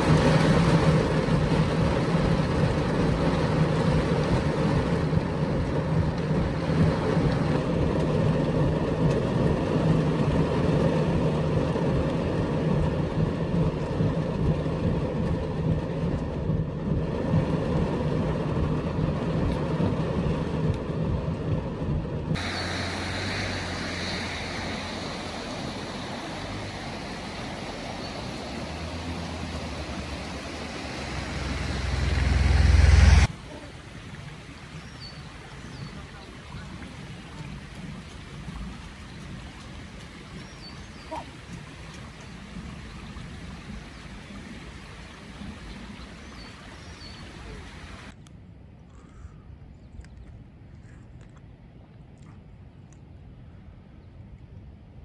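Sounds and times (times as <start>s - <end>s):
car engine hum: 0.0s - 34.1s
heavy rain on car: 0.0s - 48.2s
low rumble: 0.0s - 49.7s.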